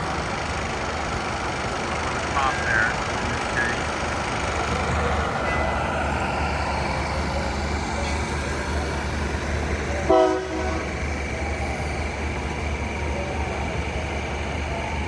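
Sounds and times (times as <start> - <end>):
diesel train running: 0.0 - 15.0
train horn toot: 10.0 - 11.0.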